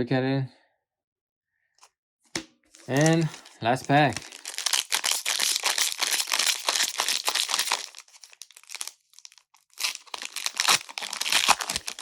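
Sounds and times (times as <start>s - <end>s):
foil wrapper crinkling and tearing: 2.7s - 12.0s.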